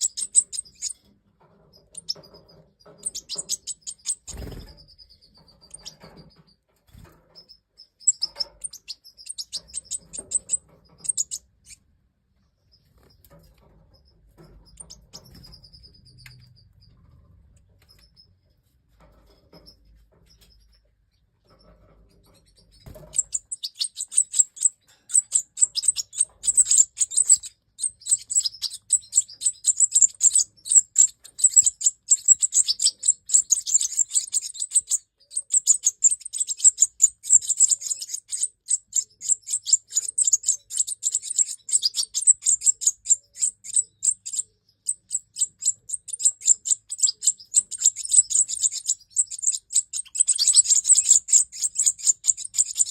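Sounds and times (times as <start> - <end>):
goldfinches twittering chirps: 0.0 - 1.1, 1.7 - 6.3, 7.4 - 11.8, 22.3 - 52.9.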